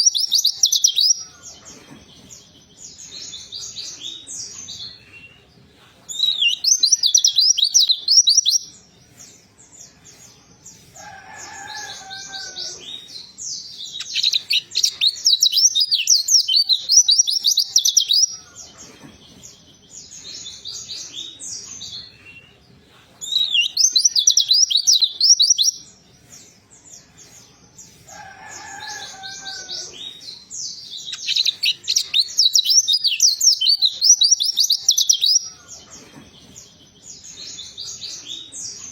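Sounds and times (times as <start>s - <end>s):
bird chatter: 10.8s - 22.6s, 27.3s - 38.9s.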